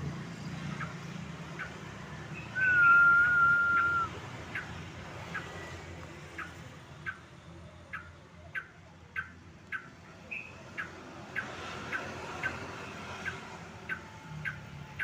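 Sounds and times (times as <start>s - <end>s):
bird sharp call notes: 2.3s - 4.7s.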